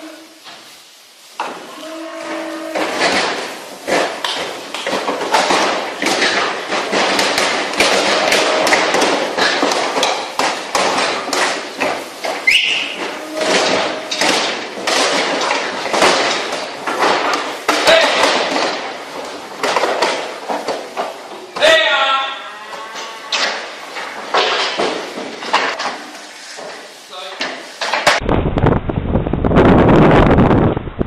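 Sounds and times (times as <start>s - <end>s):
cattle hooves on hard floor: 0.0s - 28.2s
cow mooing: 1.7s - 3.0s, 8.0s - 9.1s, 22.2s - 23.6s.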